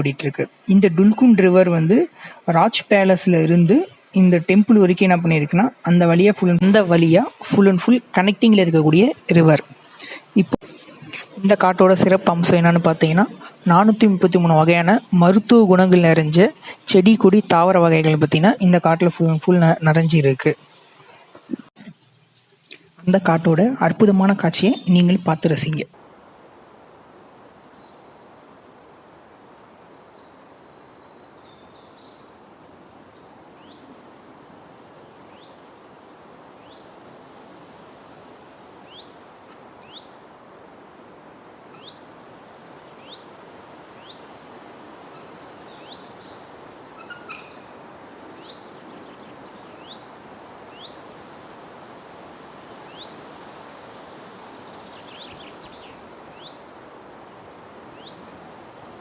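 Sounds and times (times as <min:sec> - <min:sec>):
steady background hiss: 0:00.0 - 0:59.0
high chattering bird calls: 0:35.0 - 0:39.2, 0:39.8 - 0:42.2, 0:42.8 - 0:51.2, 0:52.7 - 0:56.8, 0:57.8 - 0:58.4.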